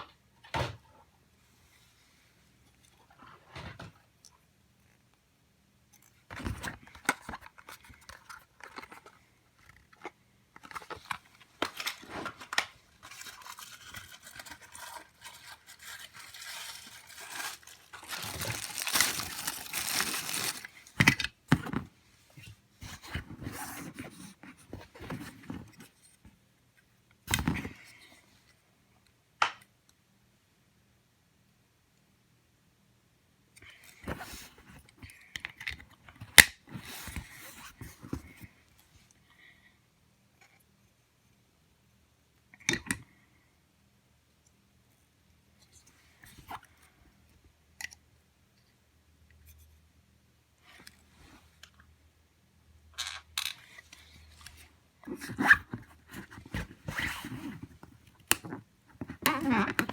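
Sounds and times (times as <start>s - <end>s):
packaging tearing and crinkling: 11.8s - 21.0s.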